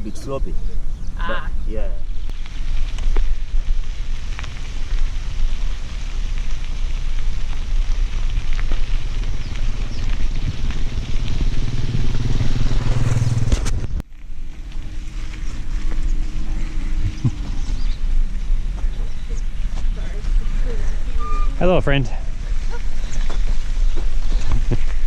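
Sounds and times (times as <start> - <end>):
bicycle tyres on gravel: 0.0 - 25.0
low hum: 0.0 - 25.0
wind buffeting microphone: 0.0 - 25.0.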